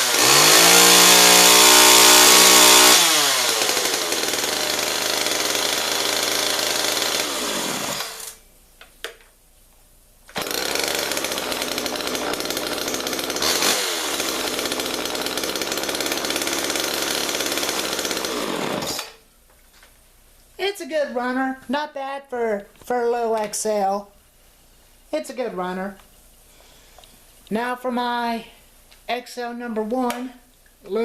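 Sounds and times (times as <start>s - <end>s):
chainsaw running: 0.0s - 8.4s, 10.3s - 19.2s.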